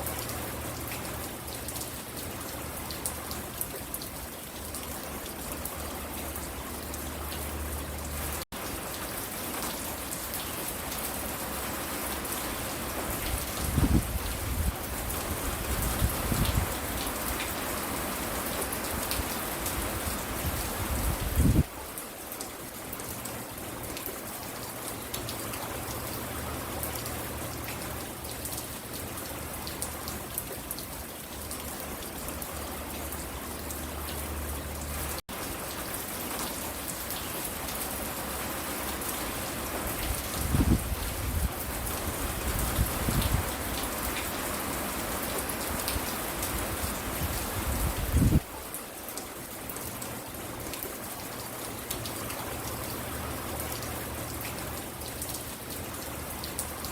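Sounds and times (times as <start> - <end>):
rain falling: 0.0 - 56.9.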